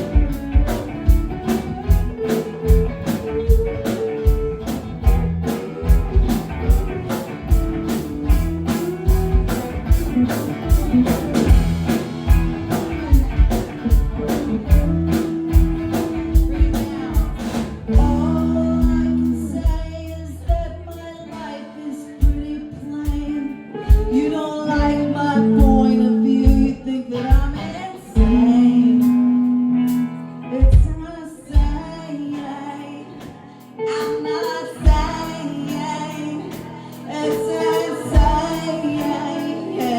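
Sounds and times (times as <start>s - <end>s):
person singing: 0.0s - 12.0s, 12.7s - 39.9s
drum beat: 0.0s - 18.3s
rock band playing: 0.0s - 39.9s.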